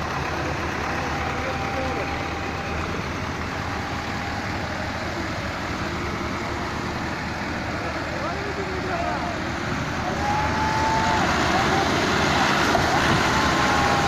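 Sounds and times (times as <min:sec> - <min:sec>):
tractor engines under load: 0:00.0 - 0:14.0
faint shouts: 0:08.3 - 0:14.0.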